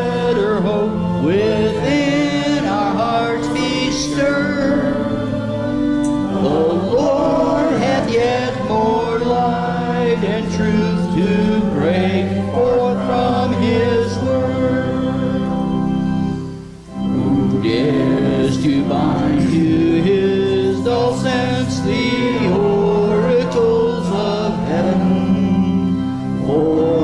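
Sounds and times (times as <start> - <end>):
group singing a hymn: 0.0 - 27.0
held chords: 0.0 - 27.0.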